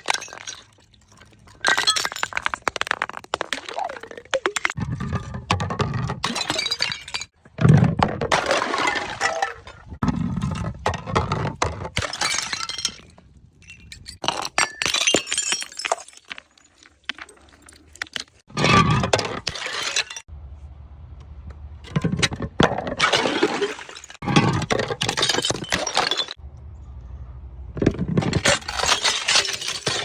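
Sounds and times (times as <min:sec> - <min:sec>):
glass bottles smashing: 0:00.0 - 0:07.4, 0:08.3 - 0:09.9, 0:12.0 - 0:20.3, 0:23.0 - 0:26.4, 0:28.2 - 0:30.0.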